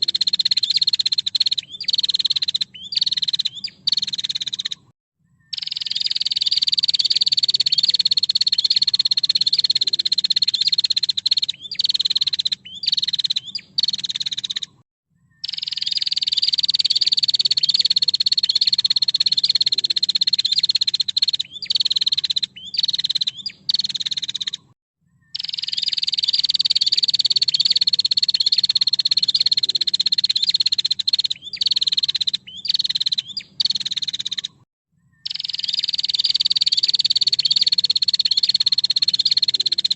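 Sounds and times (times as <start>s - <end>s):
bird buzzy trill: 5.5s - 14.8s, 15.4s - 34.6s, 35.2s - 39.9s.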